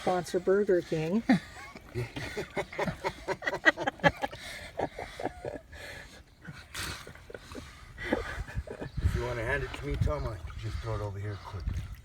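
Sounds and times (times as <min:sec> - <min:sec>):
people laughing: 0:01.6 - 0:05.8.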